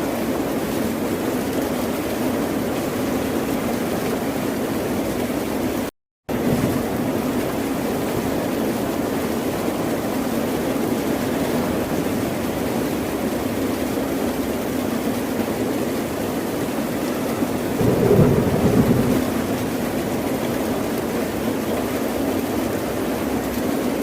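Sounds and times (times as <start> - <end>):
ocean waves washing: 16.1 - 22.1.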